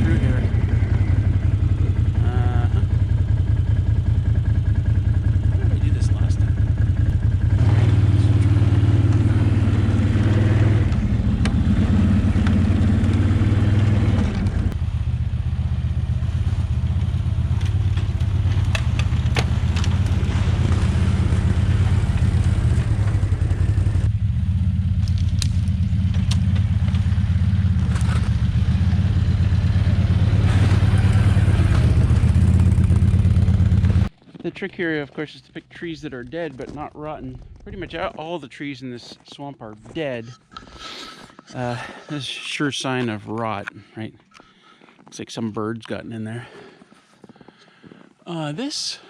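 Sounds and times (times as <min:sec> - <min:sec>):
atv engine running: 0:00.0 - 0:34.4.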